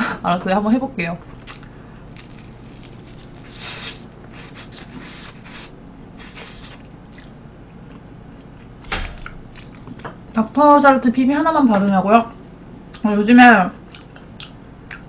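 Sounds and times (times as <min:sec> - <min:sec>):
chewing food: 0:01.4 - 0:08.7, 0:09.5 - 0:10.1, 0:13.8 - 0:15.0.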